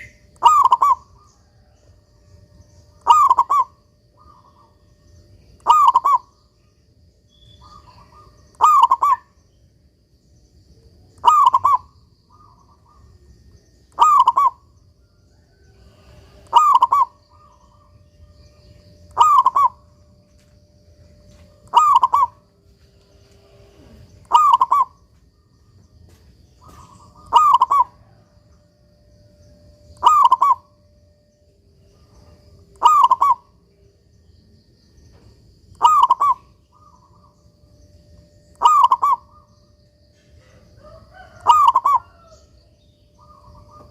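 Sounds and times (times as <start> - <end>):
dove cooing: 0.0 - 2.0, 2.9 - 5.0, 5.6 - 6.4, 7.5 - 9.4, 11.0 - 13.3, 13.9 - 20.2, 21.1 - 22.5, 23.2 - 25.1, 26.6 - 28.5, 29.7 - 30.8, 31.9 - 33.6, 35.7 - 37.4, 38.4 - 43.9.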